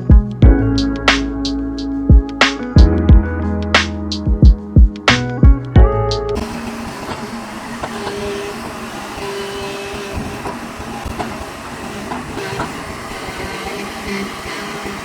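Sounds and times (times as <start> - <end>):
diesel engine running: 6.4 - 15.0.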